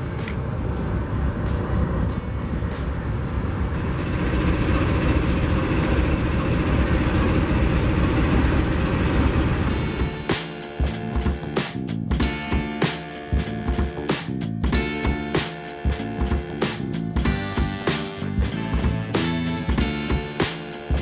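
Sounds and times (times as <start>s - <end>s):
steel wheels on rails: 0.0s - 11.9s
locomotive engine rumble: 0.0s - 21.0s.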